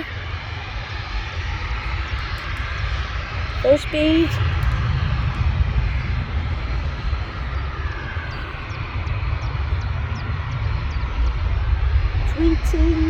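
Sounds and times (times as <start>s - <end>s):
turboprop engines at takeoff power: 0.0s - 13.0s
small birds chirping: 6.8s - 11.4s.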